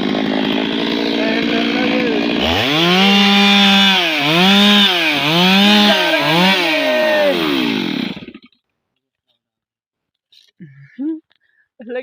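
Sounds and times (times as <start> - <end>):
chainsaw running at high revs: 0.0 - 8.5.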